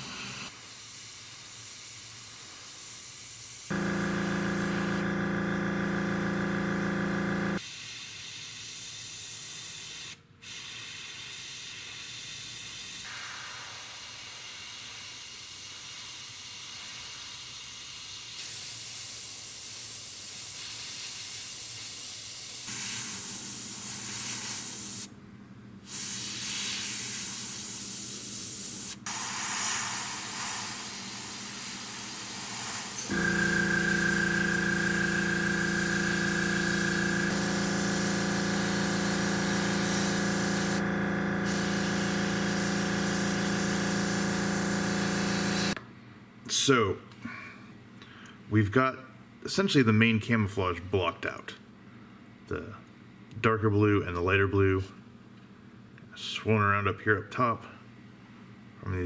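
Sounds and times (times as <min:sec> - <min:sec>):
airbrush air hiss: 0:00.0 - 0:03.8, 0:07.6 - 0:25.1, 0:25.8 - 0:45.8.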